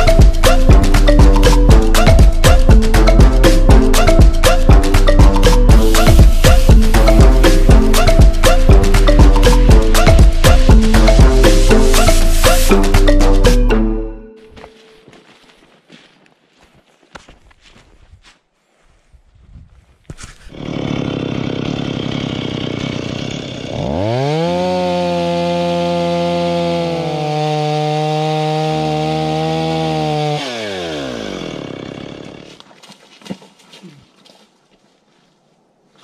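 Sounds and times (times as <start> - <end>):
chainsaw revving and cutting wood: 0.0 - 13.7, 20.3 - 32.7.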